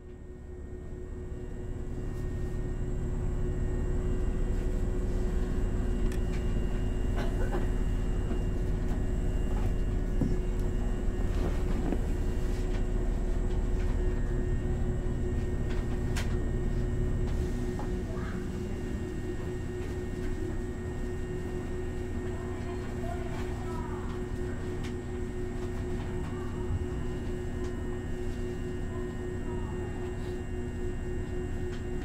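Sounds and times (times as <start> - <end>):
electric train humming: 0.0 - 32.0.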